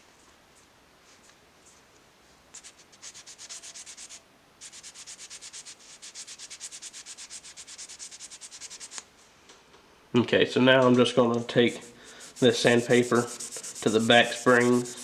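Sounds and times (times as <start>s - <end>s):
sandpaper rubbing on metal: 2.6s - 9.0s, 11.4s - 15.0s.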